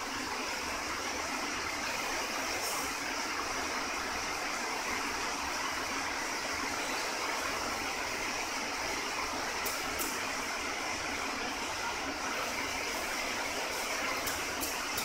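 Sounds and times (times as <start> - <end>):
workshop machinery noise: 6.5 - 15.0.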